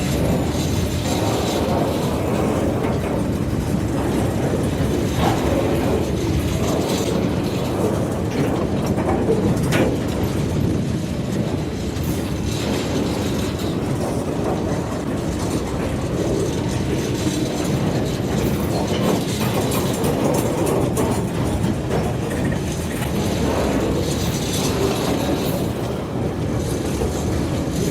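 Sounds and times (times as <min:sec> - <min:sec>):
train wheels rumbling on rail: 0:00.0 - 0:27.9
wheels clacking over rail joints: 0:00.0 - 0:27.9.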